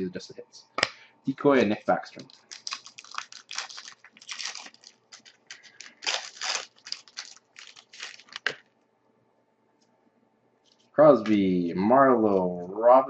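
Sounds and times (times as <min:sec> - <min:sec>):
wrapper tearing and crinkling: 0:02.1 - 0:08.7.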